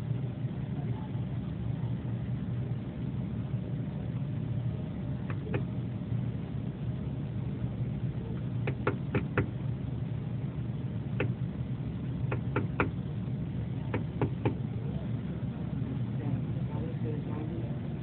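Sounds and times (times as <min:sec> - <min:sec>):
steady low rumble: 0:00.0 - 0:18.0
woodpecker tapping on glass: 0:08.6 - 0:09.5, 0:12.3 - 0:13.0, 0:13.9 - 0:14.6.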